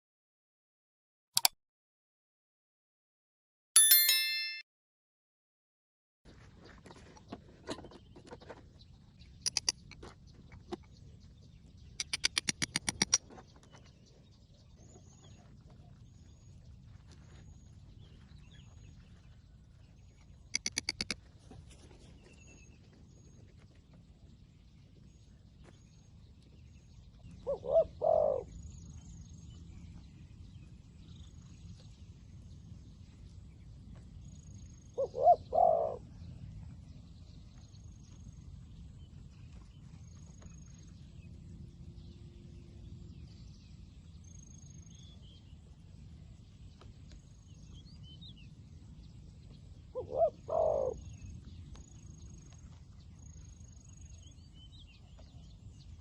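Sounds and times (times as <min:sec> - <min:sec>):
faint high chirps: 0:03.8 - 0:04.6
rapid sharp clicking: 0:12.0 - 0:13.2
dove cooing: 0:27.4 - 0:28.5, 0:35.0 - 0:36.0, 0:50.0 - 0:51.0.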